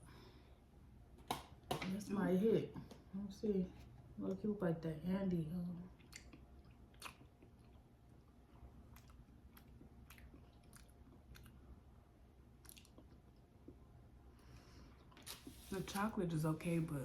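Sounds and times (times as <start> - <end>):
quiet chewing: 5.9 - 11.8, 12.5 - 16.1.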